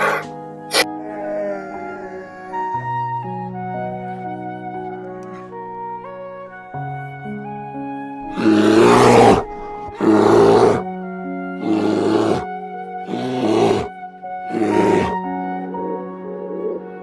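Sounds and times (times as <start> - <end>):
soft background music: 0.0 - 17.0
harsh animal calls: 8.3 - 10.8, 11.6 - 12.5, 14.5 - 15.2.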